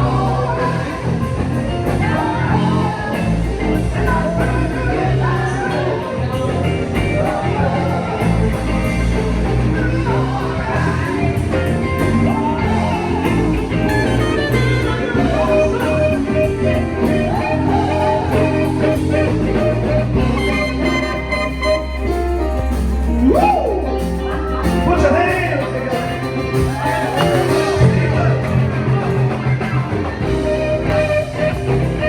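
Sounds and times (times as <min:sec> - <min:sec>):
blues-rock band music: 0:00.0 - 0:32.0
person singing: 0:00.0 - 0:32.0.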